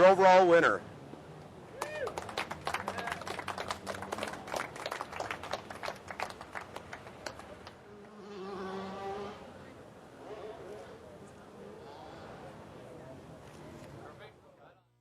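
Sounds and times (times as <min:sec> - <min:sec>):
small crowd clapping: 0:01.8 - 0:07.8.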